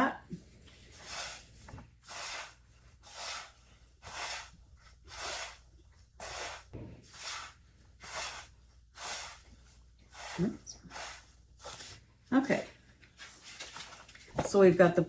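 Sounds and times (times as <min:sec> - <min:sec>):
crumbs stirred in a bowl: 0:06.2 - 0:09.5, 0:10.1 - 0:12.0.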